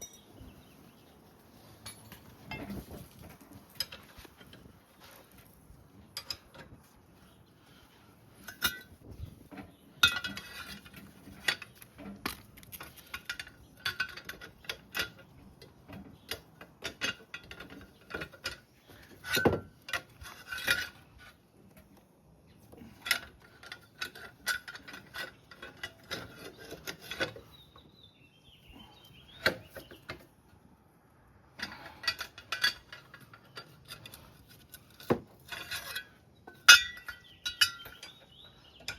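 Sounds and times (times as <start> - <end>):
metal tools clinking: 0.0 - 0.4, 1.7 - 6.8, 8.4 - 9.0, 10.0 - 21.3, 31.6 - 38.9.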